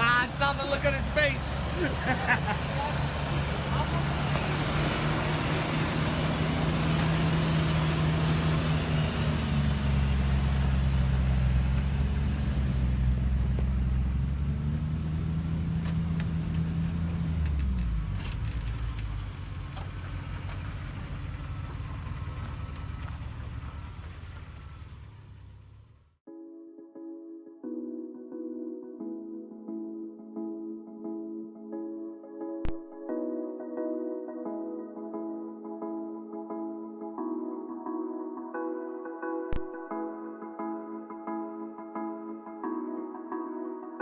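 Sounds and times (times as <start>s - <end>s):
vehicle engine low drone: 0.0s - 26.2s.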